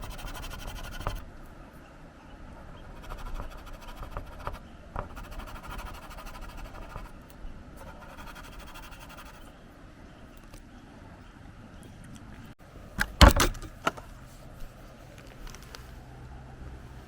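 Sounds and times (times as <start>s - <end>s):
pencil scratching on paper: 0.0s - 1.2s, 2.6s - 9.5s.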